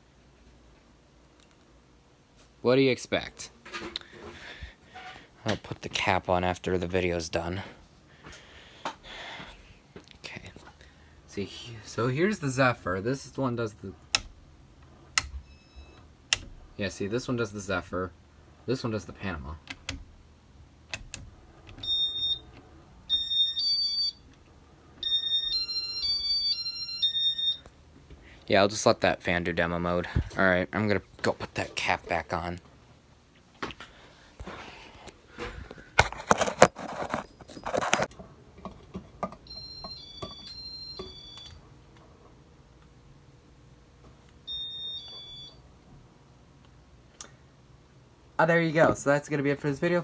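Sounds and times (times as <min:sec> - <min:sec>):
clicks knocks and scraping: 0:36.0 - 0:39.4.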